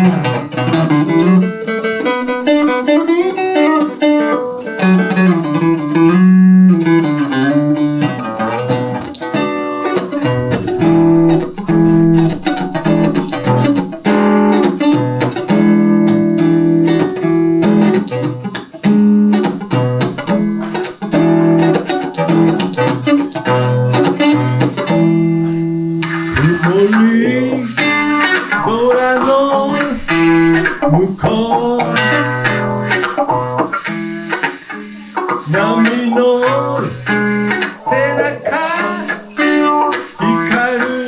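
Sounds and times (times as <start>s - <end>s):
electric guitar playing: 0.0s - 41.0s
repeating bass line: 10.3s - 14.5s, 26.3s - 32.8s.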